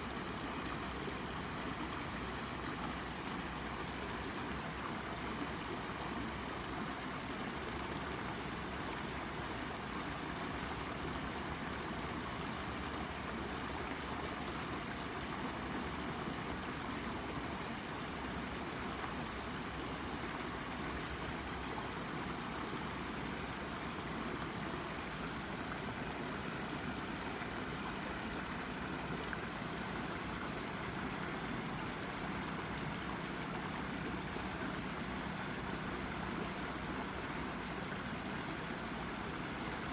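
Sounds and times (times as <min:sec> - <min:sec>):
brook babbling over rock: 0:00.0 - 0:39.9.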